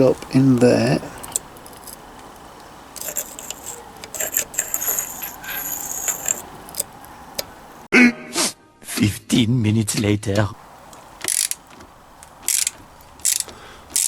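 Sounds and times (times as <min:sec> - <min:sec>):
small metal parts clinking and scraping: 0:00.2 - 0:07.5, 0:11.2 - 0:14.0.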